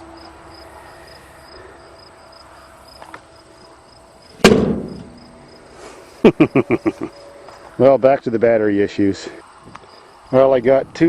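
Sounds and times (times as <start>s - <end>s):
faint steady hum: 0.0s - 8.4s
loud sharp bang: 4.4s - 5.6s.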